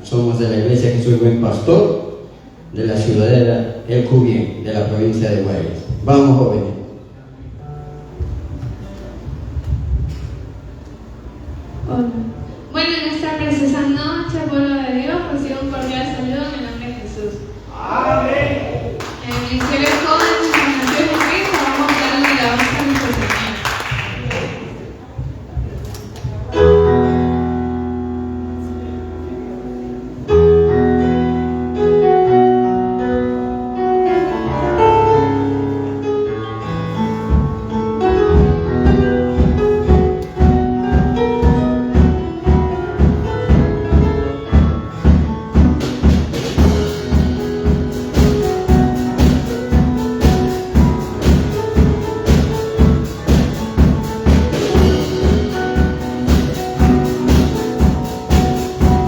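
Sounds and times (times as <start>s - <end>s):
drum kit beat: 19.2s - 24.8s, 37.3s - 59.0s
held keyboard chords: 26.4s - 59.0s
bass guitar: 26.6s - 59.0s.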